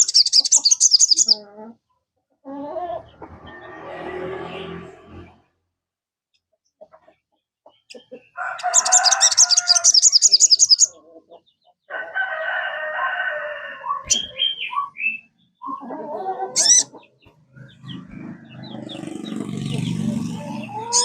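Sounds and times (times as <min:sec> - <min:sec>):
birds calling harshly: 0:00.0 - 0:01.4, 0:07.8 - 0:11.8, 0:12.5 - 0:21.0
high-pitched bird trill: 0:00.0 - 0:01.4, 0:08.6 - 0:10.9, 0:13.8 - 0:15.8, 0:16.6 - 0:16.9, 0:17.6 - 0:21.0.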